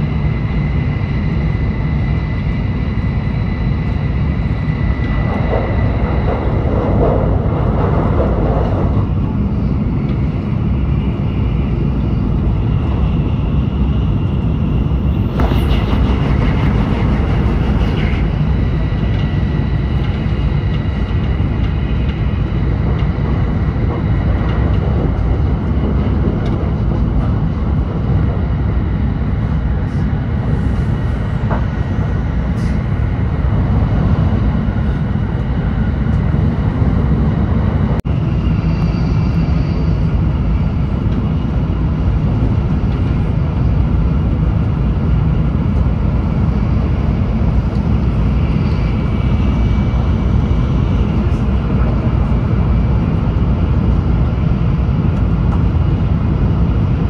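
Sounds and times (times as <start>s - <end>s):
train cabin low rumble: 0.0s - 57.0s
thin high whine: 10.8s - 22.4s, 38.1s - 40.9s.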